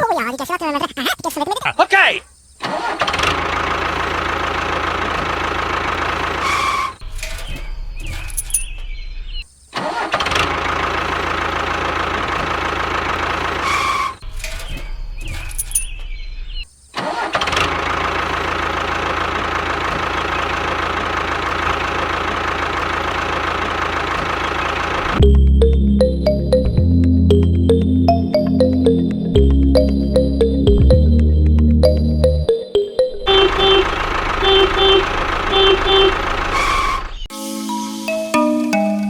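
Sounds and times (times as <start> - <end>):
tractor engine running: 2.8 - 9.4, 10.2 - 16.6, 17.2 - 32.3, 33.1 - 37.3.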